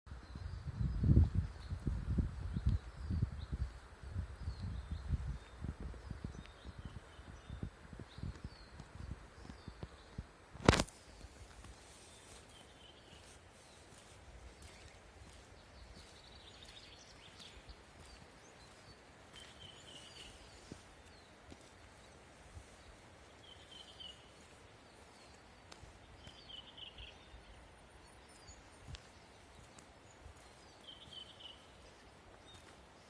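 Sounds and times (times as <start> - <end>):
bird chirping: 12.1 - 22.2, 23.3 - 33.0.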